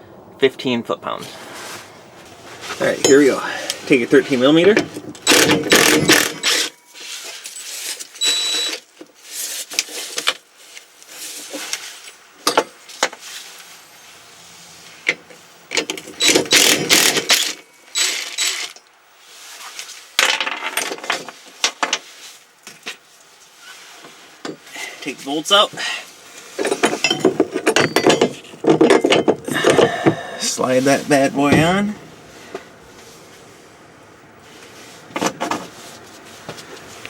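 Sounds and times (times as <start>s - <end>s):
metal hand tools clinking: 26.7s - 29.4s.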